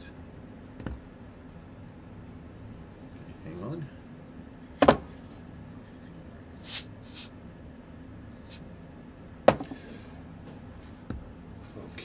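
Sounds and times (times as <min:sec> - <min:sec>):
short hisses: 0:06.6 - 0:07.3.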